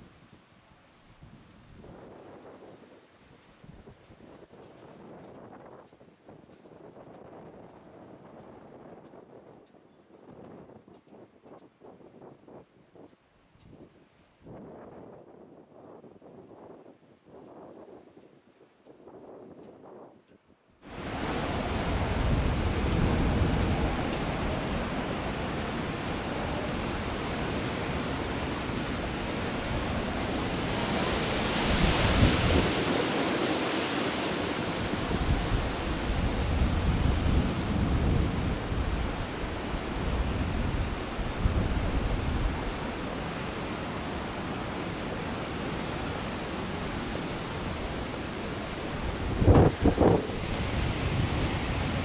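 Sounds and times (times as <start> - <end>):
gusty wind buffeting microphone: 20.9 - 52.0.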